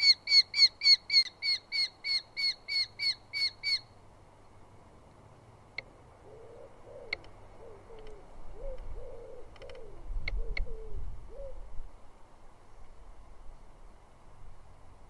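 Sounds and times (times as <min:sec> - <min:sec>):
dove cooing: 0:06.2 - 0:11.8.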